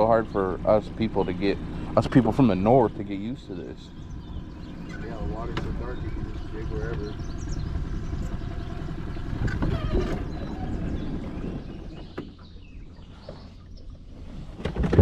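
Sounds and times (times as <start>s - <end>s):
boat motor rumbling: 0.0s - 15.0s.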